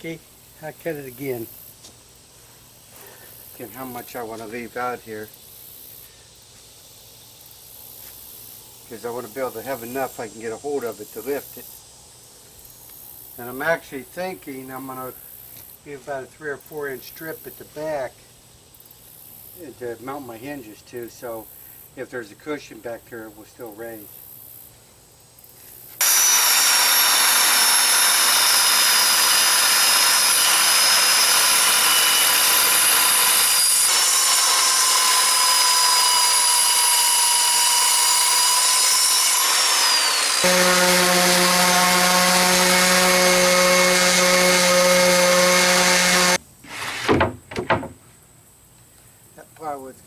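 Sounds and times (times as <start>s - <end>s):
power saw cutting plywood: 26.0s - 48.0s.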